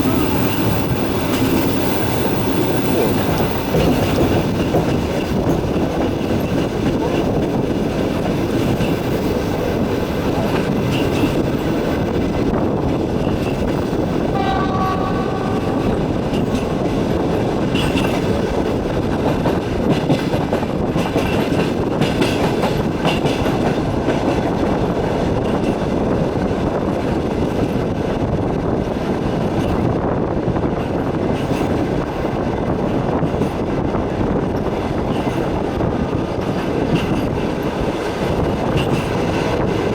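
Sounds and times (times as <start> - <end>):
train wheels rumbling on rails: 0.0 - 39.9
train horn: 14.3 - 17.9.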